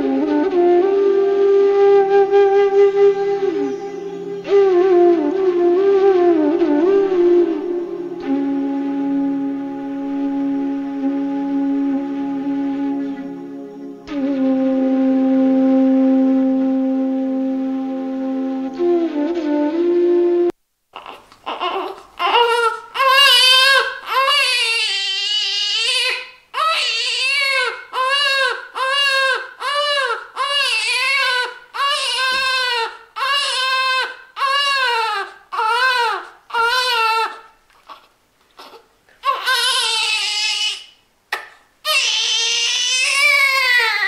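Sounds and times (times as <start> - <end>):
instrumental music: 0.0 - 20.6
baby crying: 21.0 - 41.0, 41.8 - 44.0.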